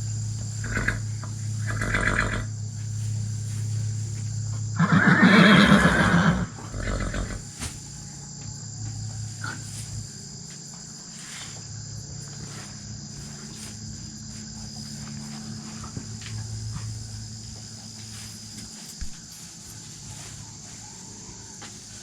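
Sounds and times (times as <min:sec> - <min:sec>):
horse neighing: 0:00.6 - 0:01.0, 0:01.6 - 0:02.5, 0:04.8 - 0:07.4.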